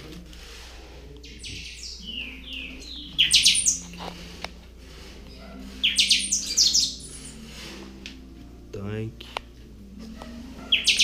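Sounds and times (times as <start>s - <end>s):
bird singing whistled notes: 1.2s - 4.0s, 5.3s - 7.5s, 10.5s - 11.0s
bursts of rapid bird chirps: 1.2s - 4.0s, 5.6s - 7.5s, 10.5s - 11.0s.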